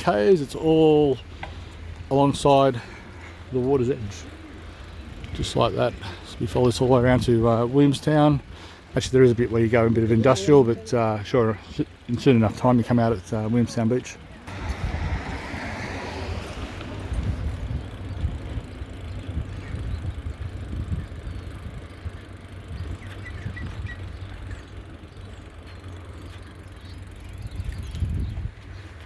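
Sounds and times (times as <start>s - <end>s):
bicycle tyres rushing on path: 0.0s - 29.0s
wind buffeting microphone: 14.5s - 26.2s, 26.8s - 29.0s.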